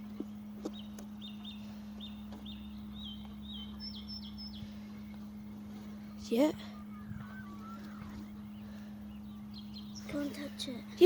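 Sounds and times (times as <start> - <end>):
steady low hum: 0.0 - 11.0
small bird chirping: 0.6 - 5.2, 6.1 - 10.4.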